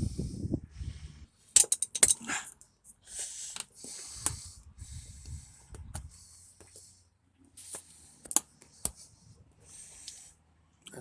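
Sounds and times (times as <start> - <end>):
bursts of hissing air: 7.6 - 8.2.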